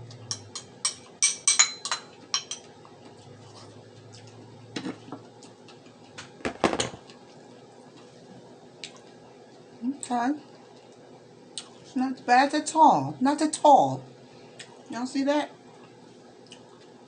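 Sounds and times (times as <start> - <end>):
spoon clinking against dish: 0.3 - 2.7.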